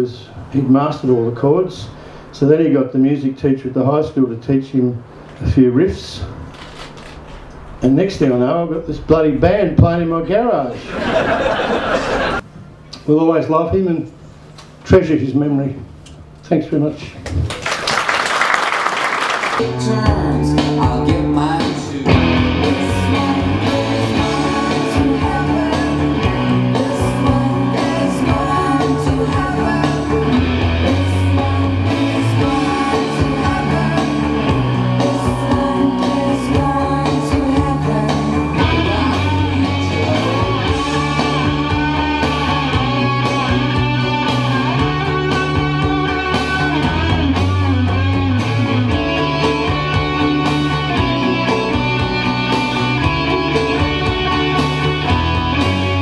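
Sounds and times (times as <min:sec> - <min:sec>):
bass: 0:00.0 - 0:17.8, 0:19.5 - 0:56.0
person singing: 0:19.6 - 0:47.7
electric guitar: 0:19.6 - 0:56.0.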